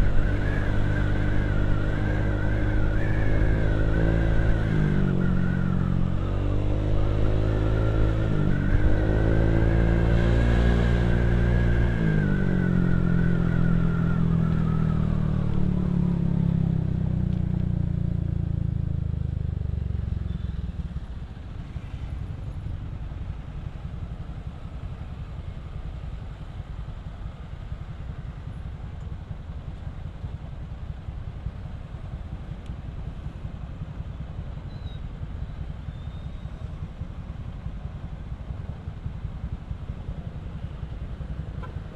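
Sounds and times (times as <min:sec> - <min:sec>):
motorcycle engine revving: 0:00.0 - 0:23.0
motorcycle engine idling: 0:14.7 - 0:41.9.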